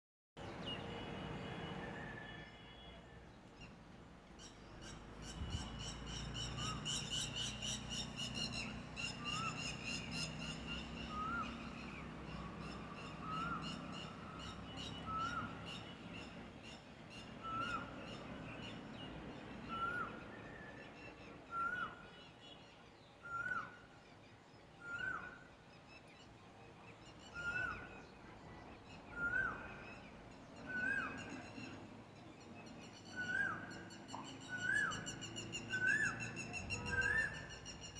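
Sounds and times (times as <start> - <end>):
bird whistling call: 19.6 - 22.1, 23.2 - 23.8, 24.8 - 25.4, 29.1 - 30.0, 33.1 - 37.9.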